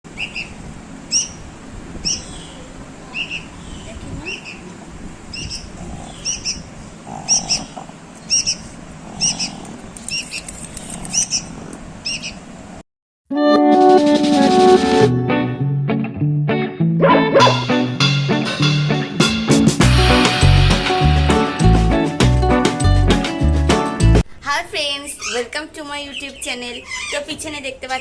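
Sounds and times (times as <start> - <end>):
bird chirping: 0.2 - 1.4, 2.0 - 4.7, 5.3 - 6.7, 7.3 - 12.4, 24.8 - 28.0.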